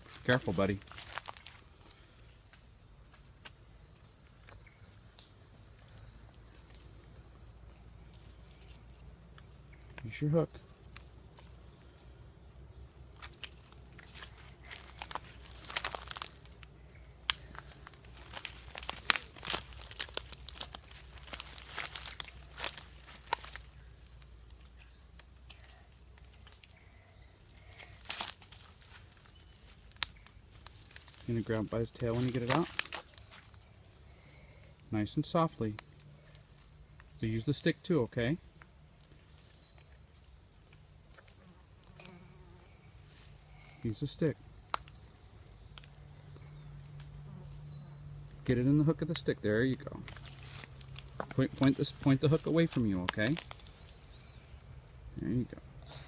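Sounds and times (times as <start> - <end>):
high-pitched insect buzz: 39.0 - 48.8.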